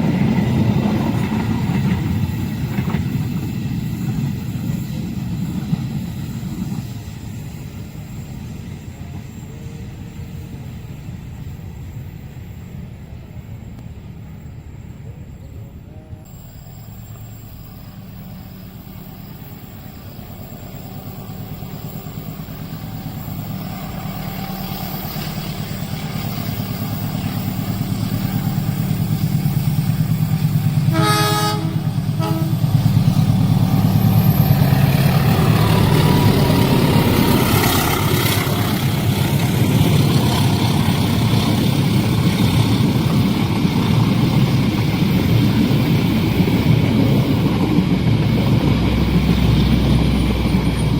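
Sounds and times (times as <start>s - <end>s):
train wheels rumbling on rails: 0.0s - 50.9s
train horn blasts: 30.8s - 32.9s.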